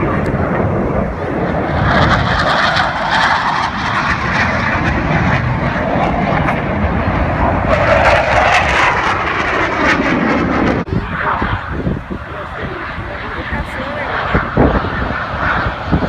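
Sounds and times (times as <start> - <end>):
jets flying over: 0.0 - 16.0.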